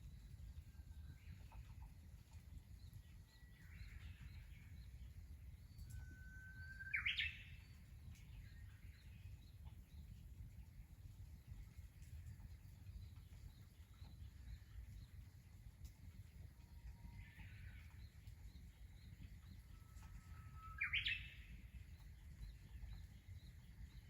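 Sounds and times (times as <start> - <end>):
faint low rumble: 0.0 - 6.1, 7.5 - 24.0
bird singing: 2.8 - 10.1, 16.7 - 24.0.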